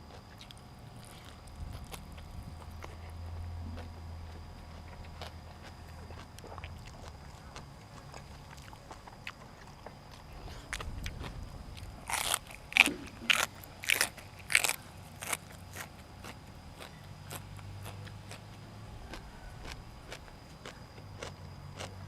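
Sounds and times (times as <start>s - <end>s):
chewing with faint clicks: 0.0s - 22.0s
crunching bites into crisp food: 0.1s - 22.0s.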